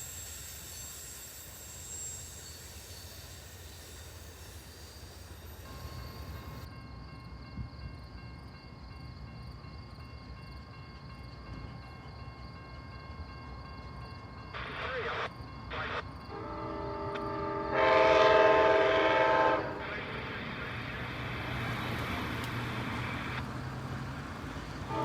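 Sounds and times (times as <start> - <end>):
faint high squeal: 0.0 - 6.9
railroad cars rumbling: 0.0 - 25.0.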